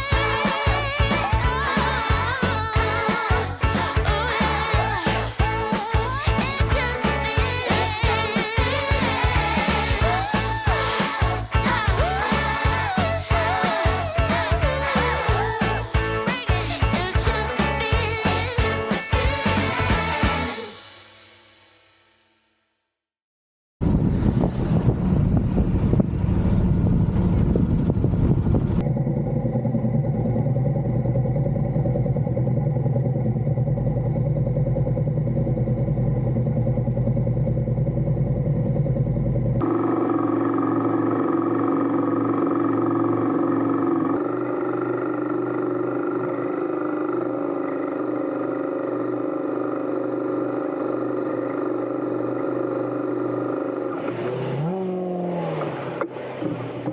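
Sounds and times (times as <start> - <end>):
motorcycle engine running: 0.0 - 20.9, 25.0 - 56.9
road and wind noise: 23.8 - 29.0.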